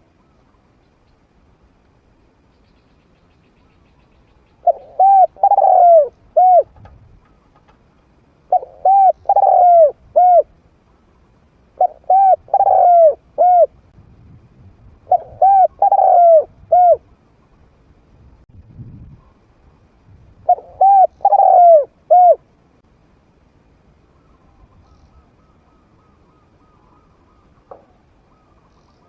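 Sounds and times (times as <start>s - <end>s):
dove cooing: 4.6s - 7.6s, 8.5s - 10.5s, 11.8s - 13.8s, 15.0s - 17.1s, 20.4s - 22.4s.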